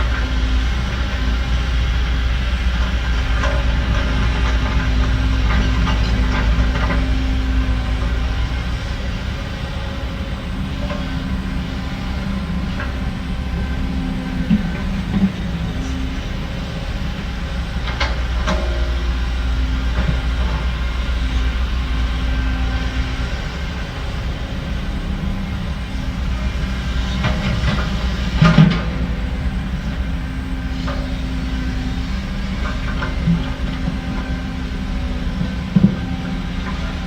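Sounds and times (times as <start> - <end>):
diesel machinery engine drone: 0.0 - 37.0.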